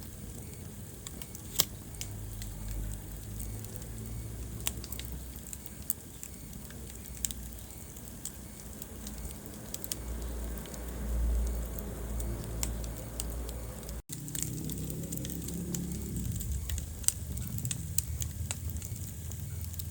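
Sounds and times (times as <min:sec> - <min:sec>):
low rumble of flames: 0:00.0 - 0:19.9
wood fire crackling and popping: 0:00.0 - 0:19.9.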